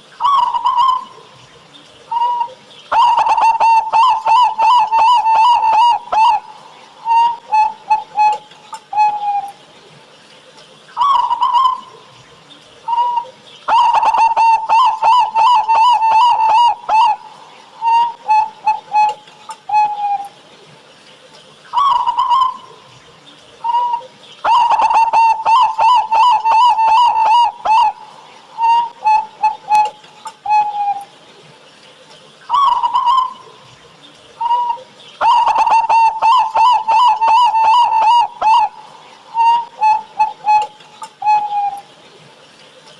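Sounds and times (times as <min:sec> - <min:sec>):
dove cooing: 0:00.1 - 0:09.6, 0:11.0 - 0:20.4, 0:21.7 - 0:31.2, 0:32.5 - 0:42.0.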